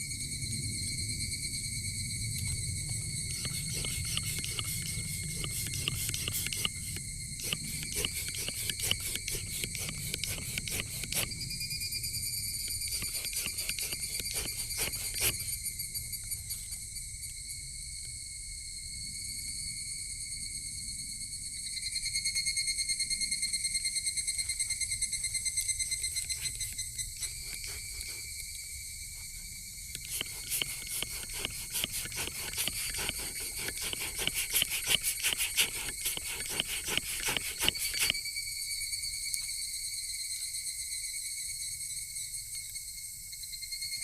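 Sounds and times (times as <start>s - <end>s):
crickets trilling: 0.0s - 44.0s.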